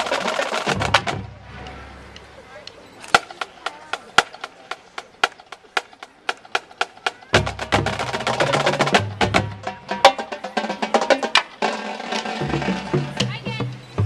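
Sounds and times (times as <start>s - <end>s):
marching band with brass: 0.0s - 2.4s, 3.1s - 14.0s
percussion ticking clicks: 0.1s - 9.0s.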